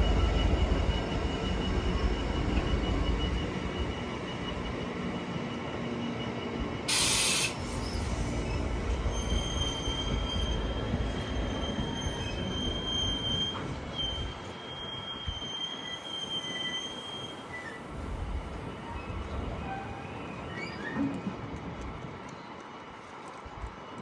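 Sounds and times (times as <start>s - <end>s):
train rumbling: 6.6s - 24.0s
short loud hiss: 6.9s - 8.7s
wheels squealing: 6.9s - 17.8s.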